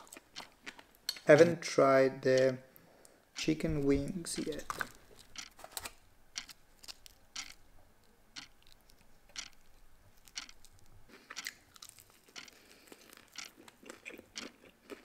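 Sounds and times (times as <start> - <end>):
crisp crunches of chewing: 8.6 - 15.0.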